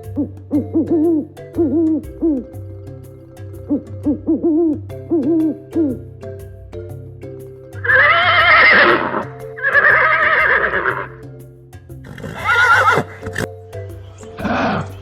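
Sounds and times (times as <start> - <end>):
background music: 0.0 - 15.0
horse whinnying: 7.8 - 11.2, 12.1 - 13.4.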